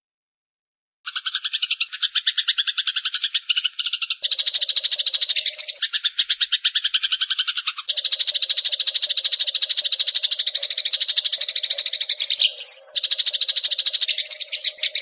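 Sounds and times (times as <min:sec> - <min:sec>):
rapid trilling animal call: 0:01.1 - 0:15.0.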